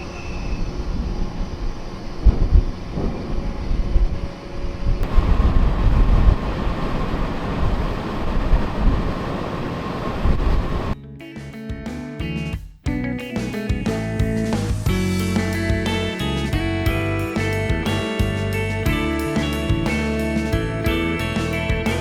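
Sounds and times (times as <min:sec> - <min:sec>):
ferry engine rumble: 0:00.0 - 0:11.0, 0:14.9 - 0:22.0
wind buffeting microphone: 0:00.0 - 0:11.0
guitar music: 0:11.0 - 0:22.0.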